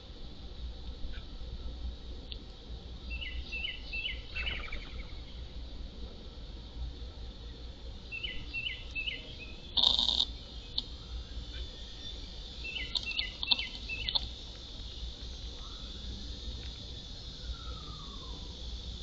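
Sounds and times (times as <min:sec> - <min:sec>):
birds chirping: 0:03.0 - 0:05.6, 0:07.4 - 0:18.7.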